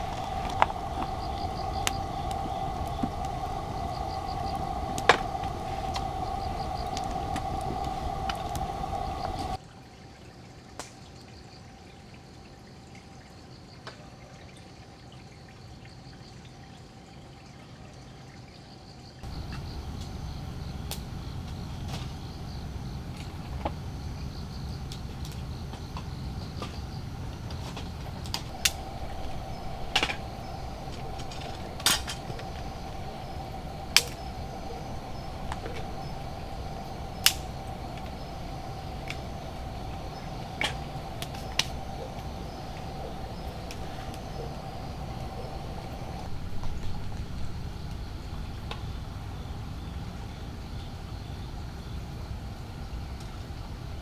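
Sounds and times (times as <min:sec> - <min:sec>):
faint chirping insect: 0:00.0 - 0:09.6, 0:19.2 - 0:54.0
loud rushing with hum: 0:00.0 - 0:09.6, 0:19.2 - 0:46.4
steady low rumble: 0:00.0 - 0:09.6, 0:19.2 - 0:49.2
steady water sound: 0:00.0 - 0:09.6, 0:19.2 - 0:48.4.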